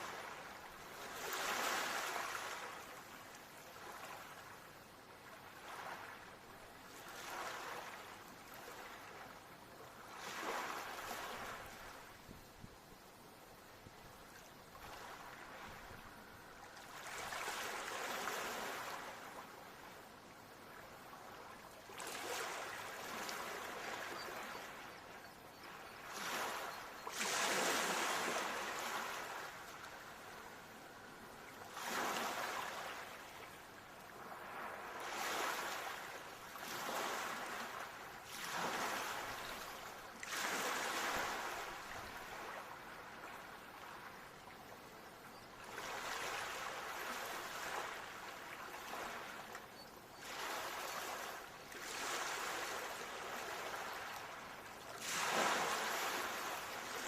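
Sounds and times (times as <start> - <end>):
ocean waves breaking: 55.0 - 57.0.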